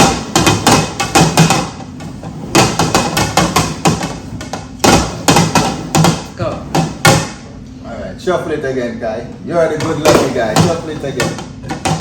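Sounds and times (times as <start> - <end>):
objects knocking on a table: 9.8 - 12.0.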